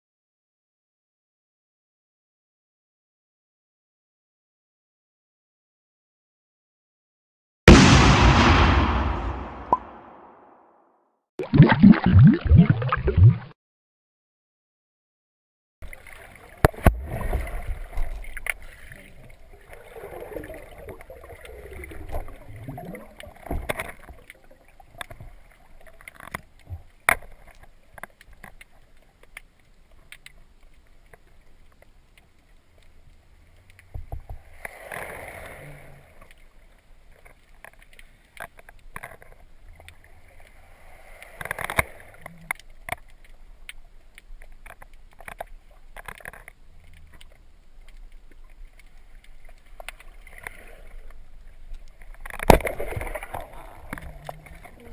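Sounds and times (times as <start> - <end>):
swirling gurgling water: 15.9 - 26.0, 48.2 - 54.9.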